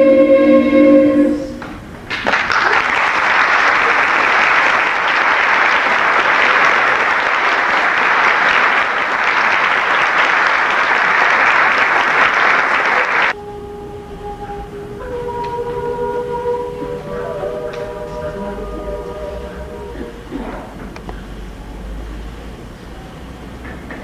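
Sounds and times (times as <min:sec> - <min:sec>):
audience applauding: 0:02.1 - 0:13.4.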